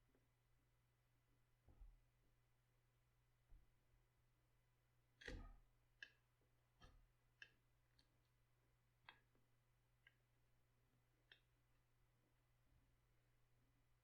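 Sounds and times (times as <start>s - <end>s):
faint light clicks and taps: 5.2s - 8.3s, 11.2s - 11.5s.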